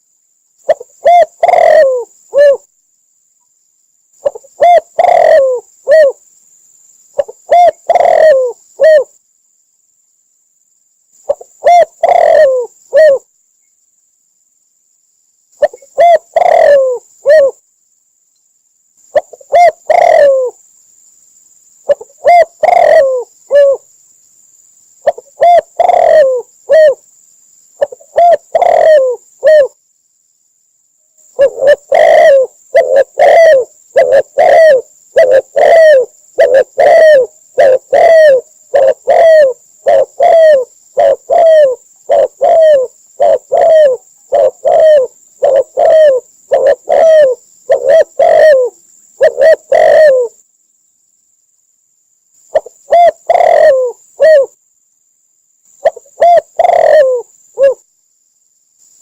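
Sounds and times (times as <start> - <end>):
dove cooing: 0.6 - 2.7, 4.2 - 6.2, 7.2 - 9.2, 11.3 - 13.3, 15.6 - 17.6, 19.2 - 20.6, 21.9 - 23.9, 25.0 - 27.0, 27.8 - 29.8, 31.4 - 50.4, 52.5 - 54.6, 55.8 - 57.8.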